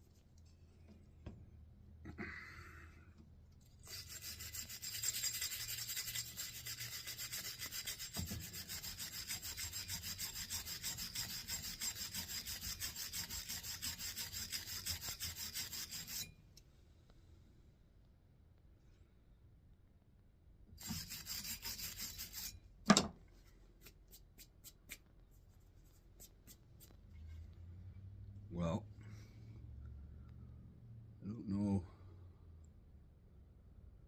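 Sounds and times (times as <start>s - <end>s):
wire brush scrubbing metal: 3.8s - 16.3s, 20.8s - 22.6s.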